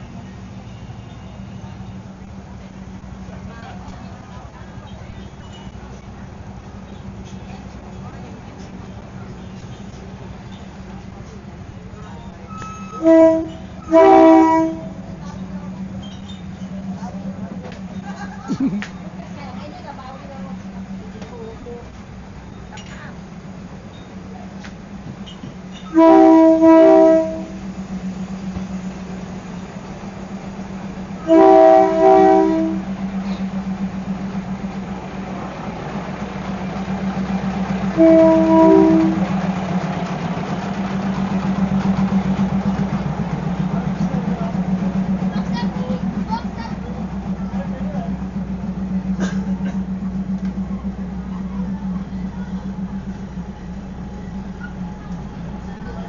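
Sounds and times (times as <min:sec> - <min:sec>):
diesel engine throbbing drone: 0:01.4 - 0:56.0
train horn blasts: 0:12.4 - 0:15.2, 0:25.2 - 0:27.8, 0:31.2 - 0:33.2, 0:37.9 - 0:39.4.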